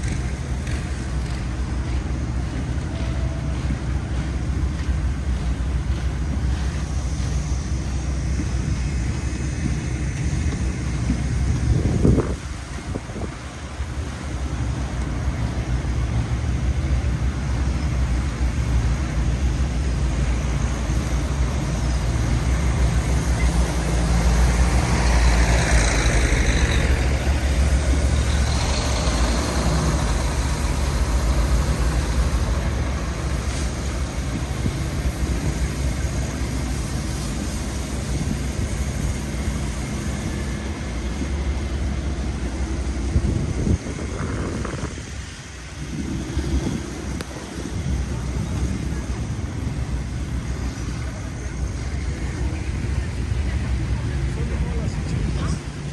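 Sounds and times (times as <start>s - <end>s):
city street traffic: 0.0s - 55.9s
wind buffeting microphone: 0.0s - 55.9s.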